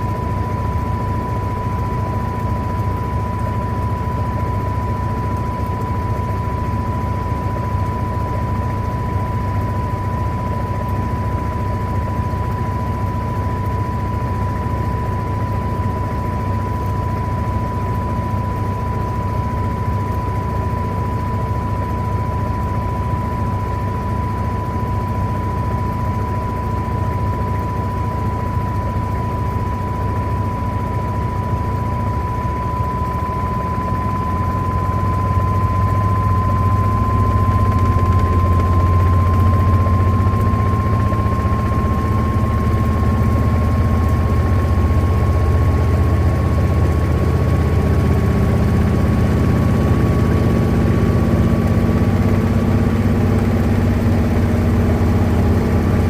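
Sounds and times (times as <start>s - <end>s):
washing machine running: 37.2s - 56.0s.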